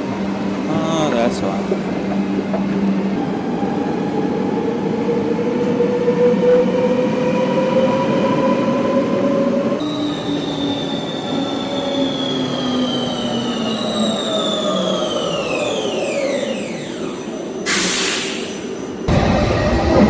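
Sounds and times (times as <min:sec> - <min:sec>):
train running rumble: 0:00.0 - 0:03.8, 0:19.0 - 0:20.0
electric train motors whining: 0:00.0 - 0:20.0.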